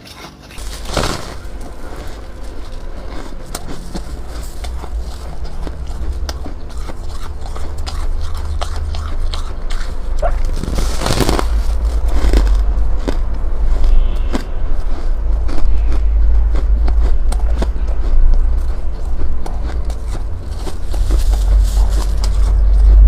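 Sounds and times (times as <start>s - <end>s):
ice being chewed: 0.0s - 23.0s
deep low rumble: 0.5s - 23.0s.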